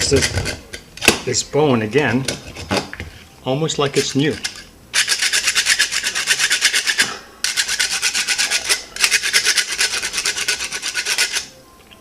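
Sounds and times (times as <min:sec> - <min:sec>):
rasp filing hard nylon: 0:05.0 - 0:11.5.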